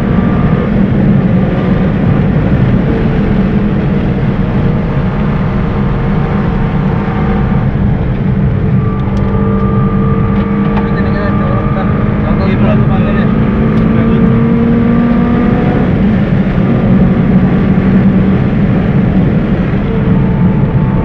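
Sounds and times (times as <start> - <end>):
car engine running hard: 0.0 - 21.0
road and wind rumble: 0.0 - 21.0.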